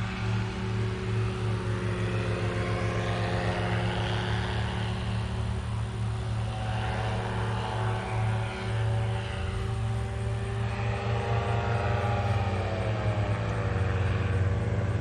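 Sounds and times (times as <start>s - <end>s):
propeller aircraft engine drone: 0.0s - 15.0s.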